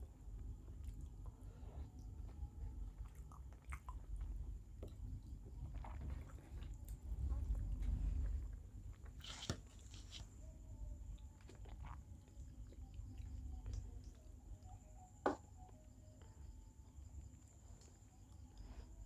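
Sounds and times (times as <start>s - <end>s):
person chewing food: 0.2s - 10.4s, 11.1s - 14.7s.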